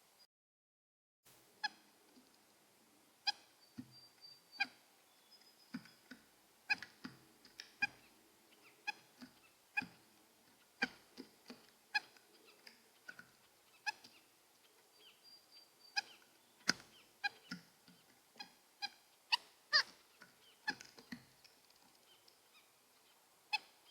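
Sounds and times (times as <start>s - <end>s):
bird nasal honking calls: 15.8s - 17.5s.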